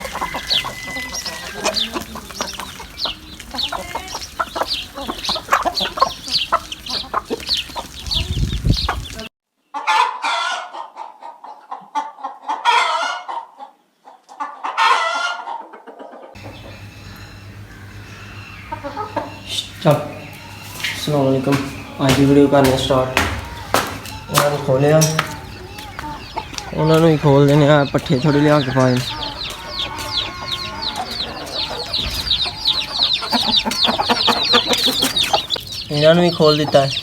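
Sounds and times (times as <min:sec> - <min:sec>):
rooster crowing: 0:00.0 - 0:06.2, 0:16.4 - 0:35.6
chickens clucking: 0:00.0 - 0:37.0.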